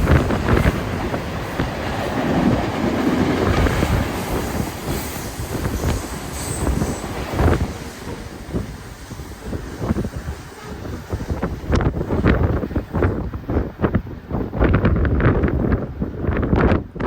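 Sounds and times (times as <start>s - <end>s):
train wheels knocking on track: 0.0s - 12.0s
faint high squeal: 5.0s - 7.2s.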